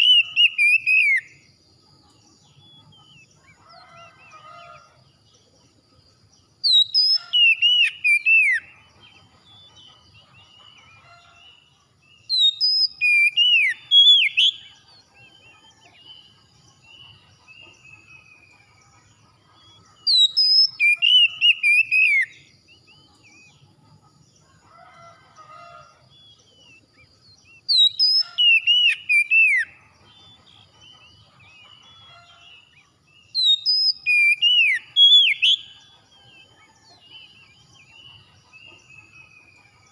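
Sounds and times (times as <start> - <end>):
bird whistling song: 0.0 - 1.5, 6.6 - 11.4, 12.1 - 23.6, 26.1 - 39.9
faint bird calls: 0.0 - 5.8.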